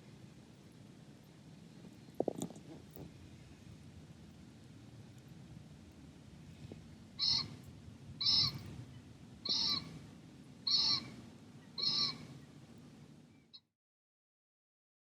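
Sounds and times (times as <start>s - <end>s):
faint low hum: 0.0s - 13.7s
short bird calls: 7.2s - 7.6s, 8.2s - 8.7s, 9.5s - 10.0s, 10.7s - 12.5s.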